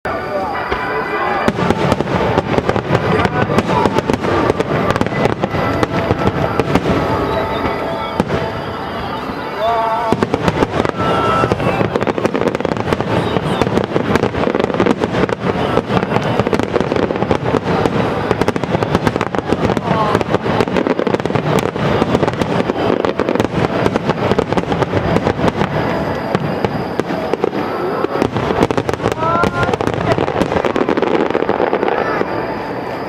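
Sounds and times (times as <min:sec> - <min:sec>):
fireworks bangs and crackles: 0:00.1 - 0:33.0.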